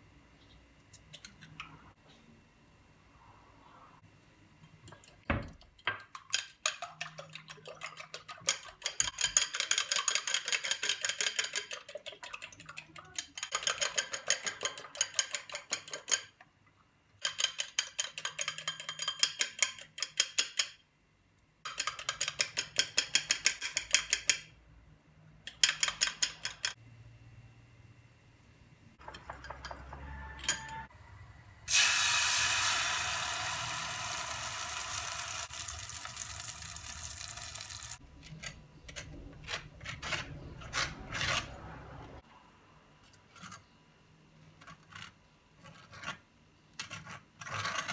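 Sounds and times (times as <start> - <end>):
loud sizzle: 31.6 - 38.0.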